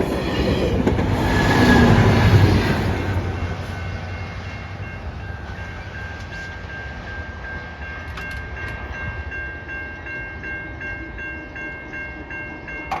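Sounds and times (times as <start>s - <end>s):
passing train rumble: 0.0s - 13.0s
warning bells ringing: 3.0s - 13.0s.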